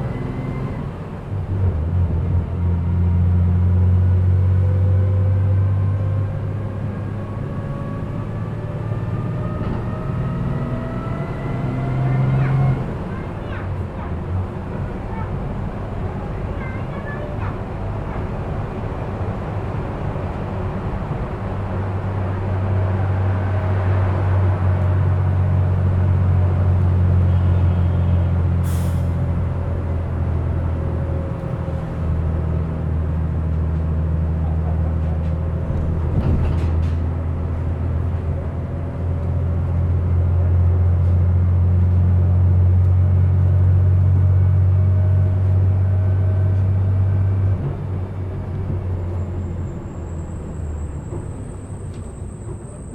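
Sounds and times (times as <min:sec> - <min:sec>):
bus engine drone: 0:00.0 - 0:52.9.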